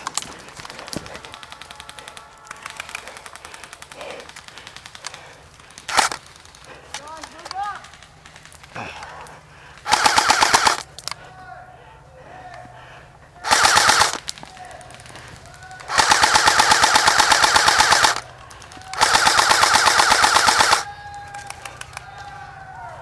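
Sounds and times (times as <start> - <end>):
airsoft rifle firing full auto: 5.9 - 6.2, 9.8 - 10.9, 13.4 - 21.7.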